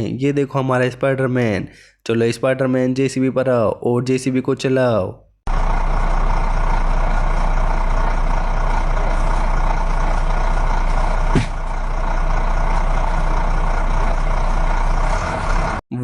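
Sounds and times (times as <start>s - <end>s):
diesel engine humming: 5.5s - 15.8s.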